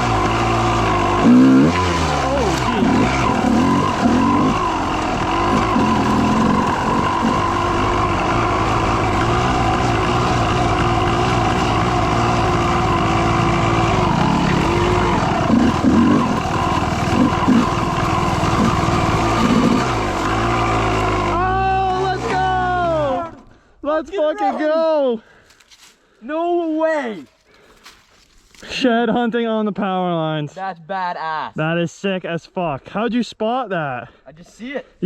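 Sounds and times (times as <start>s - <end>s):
dirt bike engine running: 0.0s - 23.5s.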